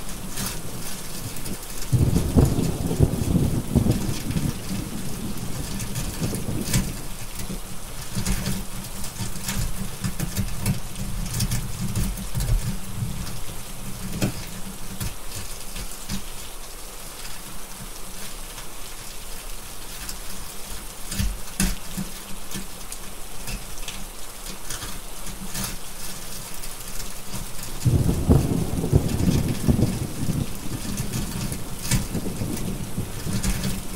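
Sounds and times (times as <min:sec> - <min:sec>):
steady rain: 0:00.0 - 0:33.9
thunder rumbling: 0:01.9 - 0:07.0, 0:27.8 - 0:33.9
wood fire crackling: 0:18.2 - 0:33.9.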